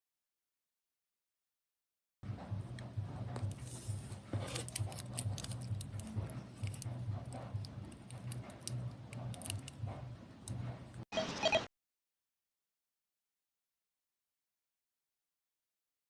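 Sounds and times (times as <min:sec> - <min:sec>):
small clicks and rattles: 0:04.5 - 0:11.0.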